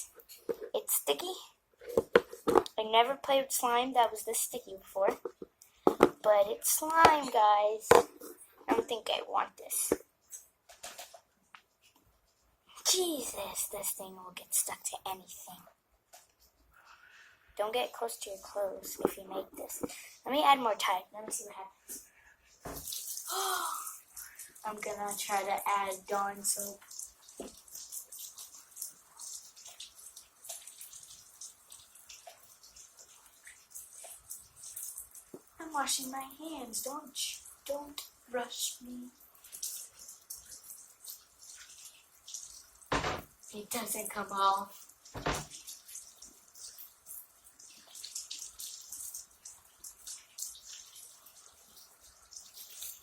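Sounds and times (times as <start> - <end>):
tap water running and splashing: 0.0 - 16.8, 17.5 - 53.0
hands scrubbing slime: 17.6 - 42.8.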